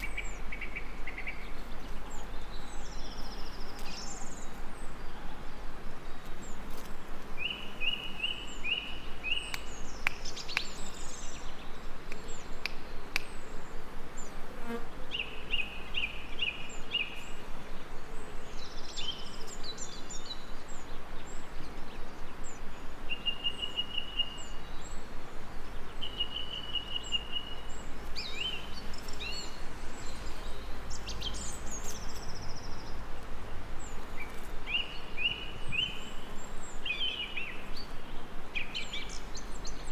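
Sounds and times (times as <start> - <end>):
songbird singing repeated notes: 0.0 - 39.9
steady hiss: 15.4 - 39.9.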